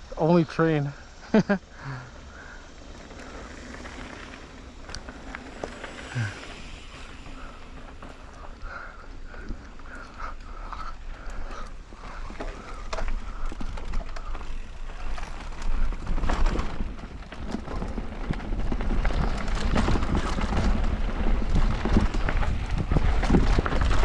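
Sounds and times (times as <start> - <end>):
faint steady whine: 0.0 - 18.8
bike tyres on gravel trail: 0.0 - 24.0
wind rumbling on microphone: 2.3 - 24.0.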